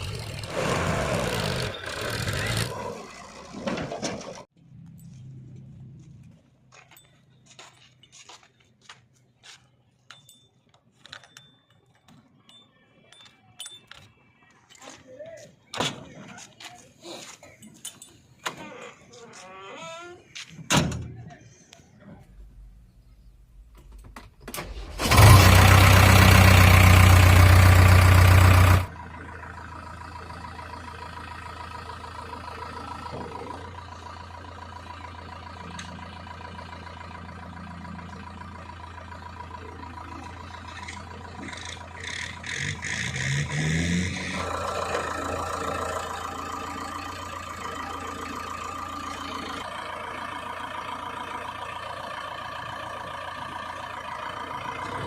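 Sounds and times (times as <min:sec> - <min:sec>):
diesel engine running: 0:00.0 - 0:06.6, 0:24.5 - 0:55.0.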